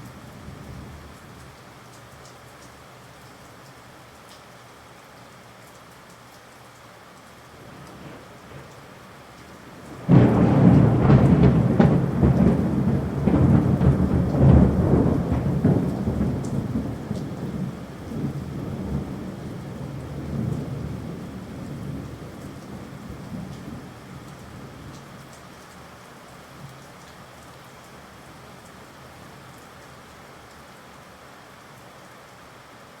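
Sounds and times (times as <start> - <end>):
steady rain: 0.0 - 33.0
thunderclap crackling and rumbling: 7.6 - 8.8, 9.6 - 25.2.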